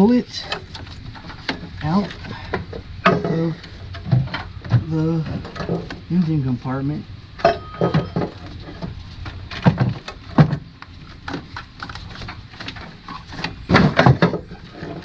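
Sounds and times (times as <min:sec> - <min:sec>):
metal cover knocking and clunking: 0:02.5 - 0:06.0, 0:07.4 - 0:08.9, 0:09.5 - 0:10.6, 0:13.7 - 0:15.0.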